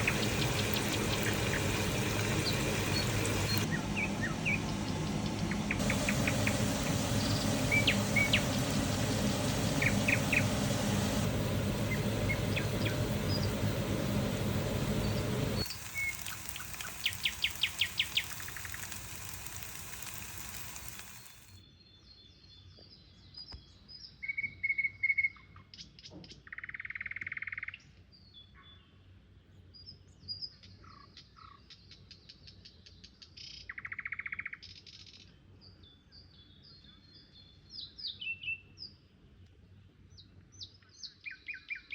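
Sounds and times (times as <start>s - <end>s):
loud steady rushing noise: 0.0s - 21.5s
small birds chirping: 0.0s - 21.5s.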